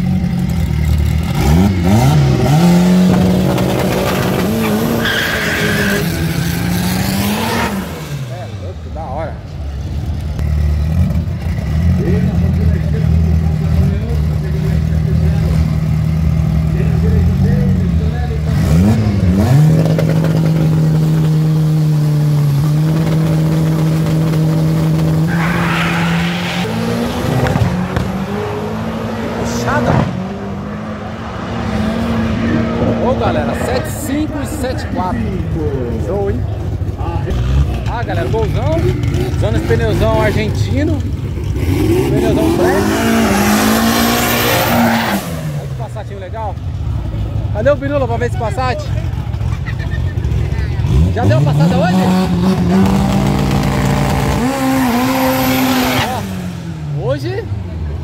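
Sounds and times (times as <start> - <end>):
race car engine revving: 0.0 - 58.0
high-pitched squeal: 3.8 - 6.6, 25.2 - 29.1.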